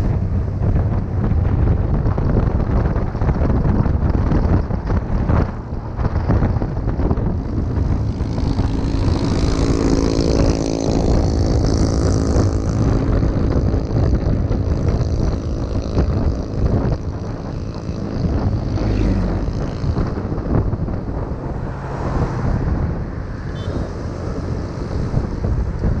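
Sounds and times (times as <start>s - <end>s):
wind buffeting microphone: 0.0s - 26.0s
motorbike engine running: 6.1s - 21.3s.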